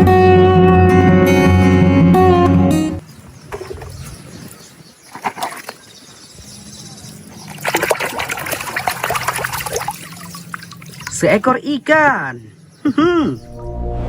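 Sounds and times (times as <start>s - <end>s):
water splashing and sloshing: 3.0s - 11.4s.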